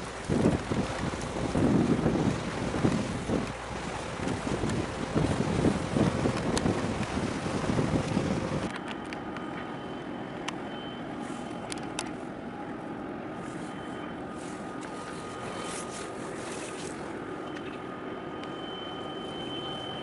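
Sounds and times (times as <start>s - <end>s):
hum of distant vehicles and machinery: 0.0s - 20.0s
faint high whine: 8.7s - 20.0s.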